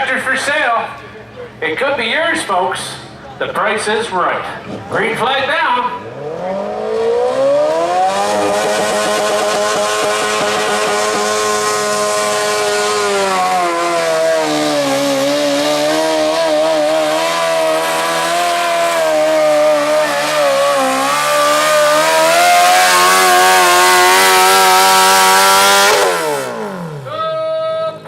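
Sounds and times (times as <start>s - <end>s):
lawn tractor engine under load: 7.5s - 27.1s.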